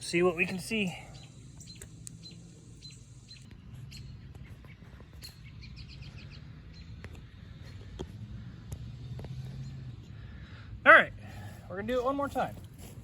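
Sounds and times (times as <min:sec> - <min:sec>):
birds chirping: 0:00.0 - 0:12.7.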